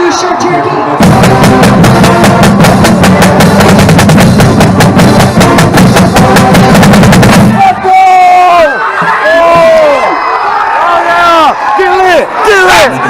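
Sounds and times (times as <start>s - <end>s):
marching drumline playing: 0.0s - 8.3s, 8.9s - 10.1s.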